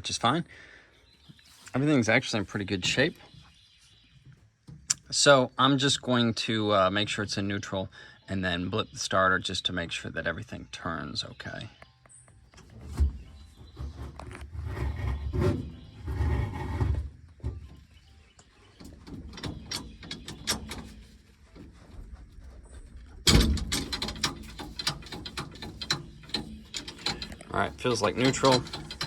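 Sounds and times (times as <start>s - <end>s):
gear shift lever clunking and rattling: 17.5s - 22.2s, 23.0s - 29.0s.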